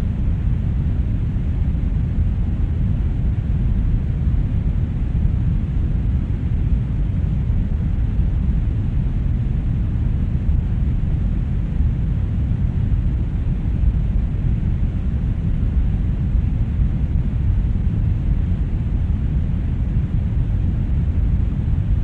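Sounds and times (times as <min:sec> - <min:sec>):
brown noise rumbling hiss: 0:00.0 - 0:22.0.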